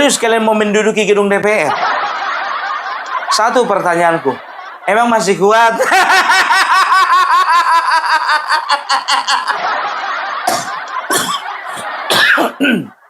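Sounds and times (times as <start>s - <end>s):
man laughing: 5.0s - 13.0s.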